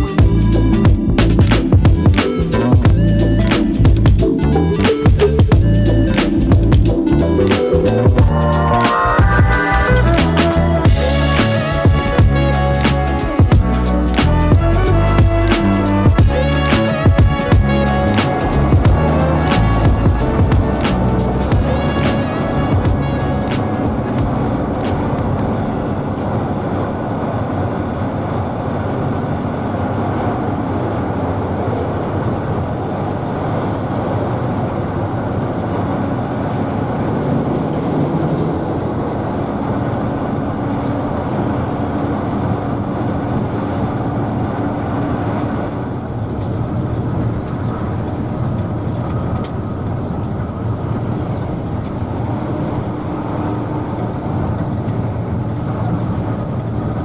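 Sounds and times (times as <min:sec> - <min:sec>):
diesel bus engine rumbling: 0:00.0 - 0:26.8.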